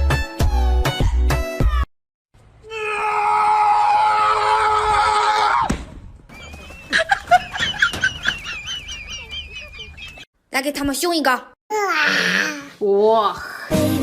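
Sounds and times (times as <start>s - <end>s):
loud scream-like cry: 2.7s - 5.7s.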